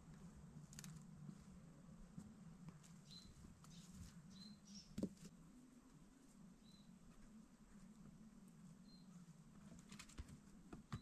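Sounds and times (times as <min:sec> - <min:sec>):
faint high bird chirps: 0:03.0 - 0:05.0, 0:06.6 - 0:07.0, 0:08.8 - 0:09.3.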